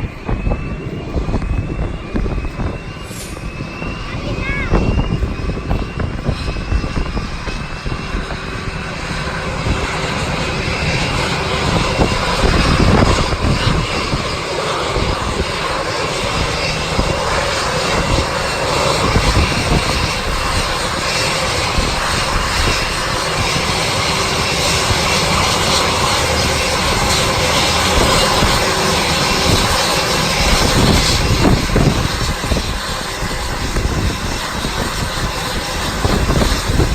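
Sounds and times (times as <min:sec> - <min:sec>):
jet engines running: 0:00.0 - 0:36.9
wind rumbling on microphone: 0:00.0 - 0:36.9.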